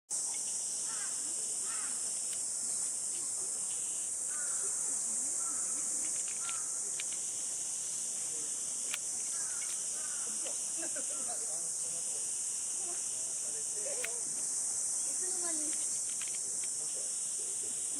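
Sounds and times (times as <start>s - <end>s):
cicadas chorus: 0.1s - 17.9s
sharp click: 6.0s - 7.2s, 8.8s - 9.8s, 15.6s - 16.8s.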